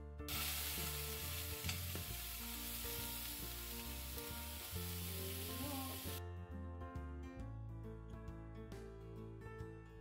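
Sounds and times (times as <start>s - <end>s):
fish sizzling in a skillet: 0.3s - 6.2s.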